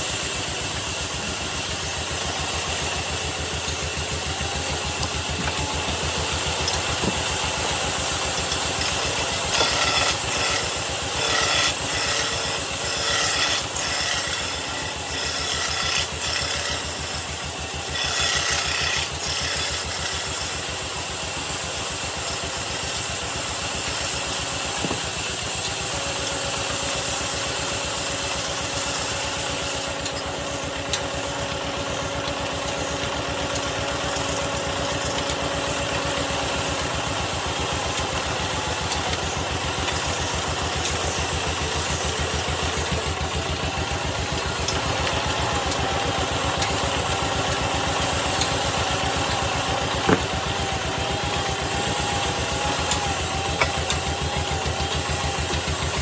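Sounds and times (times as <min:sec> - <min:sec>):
turning tool scraping wood: 0:00.0 - 0:56.0
wood lathe running: 0:00.0 - 0:56.0.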